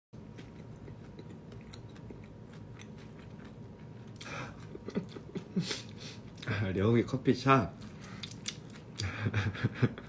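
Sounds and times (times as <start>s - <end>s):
small crunches and mouth clicks: 0.2s - 5.4s, 7.8s - 9.1s
person chewing food: 0.2s - 6.5s, 7.7s - 9.4s.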